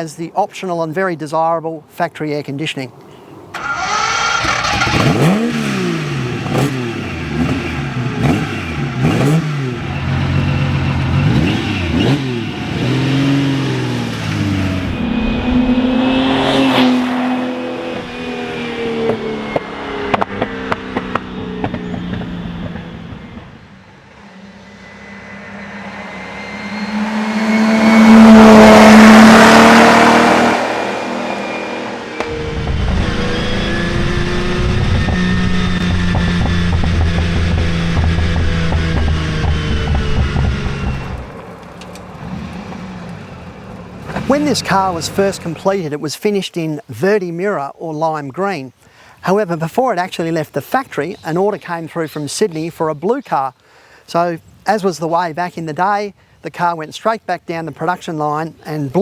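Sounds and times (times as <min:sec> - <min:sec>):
car engine revving: 0:03.6 - 0:45.6
car driving past: 0:09.2 - 0:45.5.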